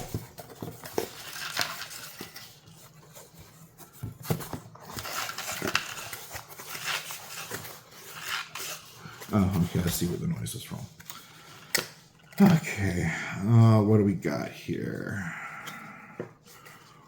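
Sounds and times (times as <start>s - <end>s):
packing material rustling and crinkling: 0.0s - 13.0s.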